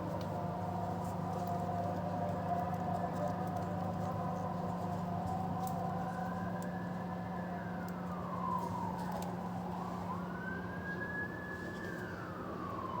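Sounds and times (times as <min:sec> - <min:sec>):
siren wailing: 0:06.8 - 0:13.0.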